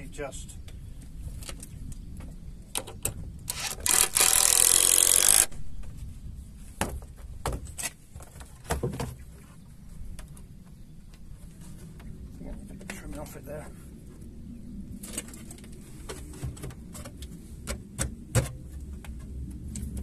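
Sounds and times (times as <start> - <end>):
power tool cutting wood: 3.5 - 5.5.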